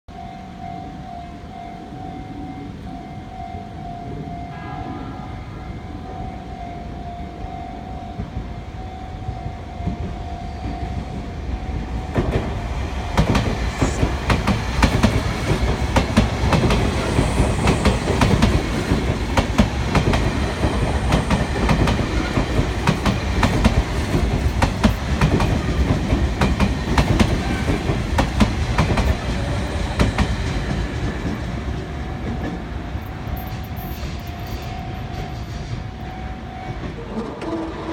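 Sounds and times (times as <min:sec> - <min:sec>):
level crossing warning bell: 0:00.1 - 0:12.9, 0:32.0 - 0:37.6
train wheels clickety-clack: 0:09.3 - 0:37.9.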